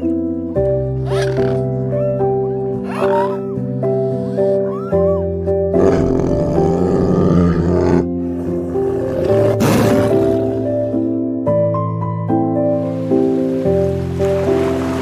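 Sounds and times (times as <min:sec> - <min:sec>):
soft piano music: 0:00.0 - 0:15.0
tiger roaring: 0:05.7 - 0:11.0.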